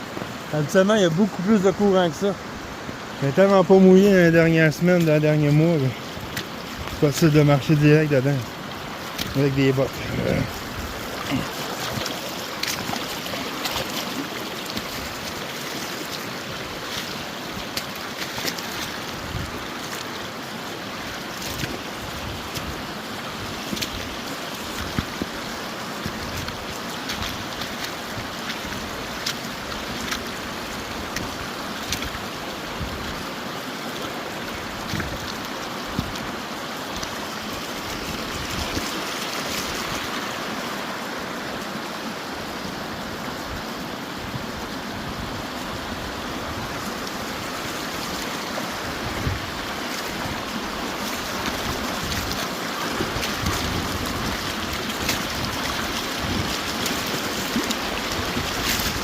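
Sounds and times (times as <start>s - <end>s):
river water rushing: 0.0s - 59.0s
wind buffeting microphone: 8.9s - 12.2s, 48.8s - 50.6s, 53.0s - 56.8s.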